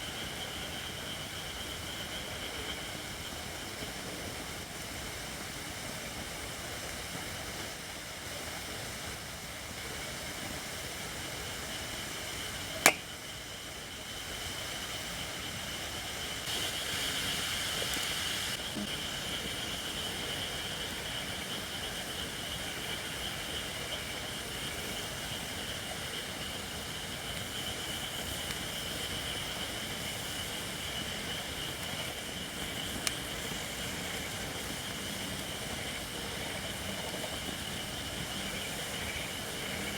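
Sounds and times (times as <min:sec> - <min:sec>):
campfire hissing: 0:00.0 - 0:39.9
small fire pop: 0:12.8 - 0:13.3, 0:30.4 - 0:35.0.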